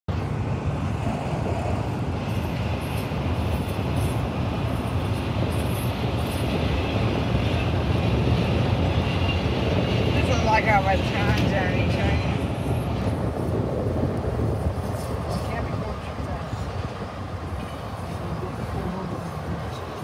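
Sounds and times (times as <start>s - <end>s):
freight train wheels rumbling: 0.1s - 20.0s.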